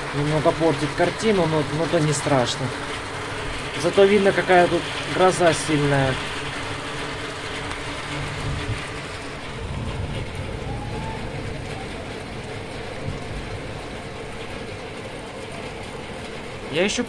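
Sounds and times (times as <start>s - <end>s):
heavy rain pouring: 0.0s - 17.0s
low thunder rumble: 6.1s - 16.7s.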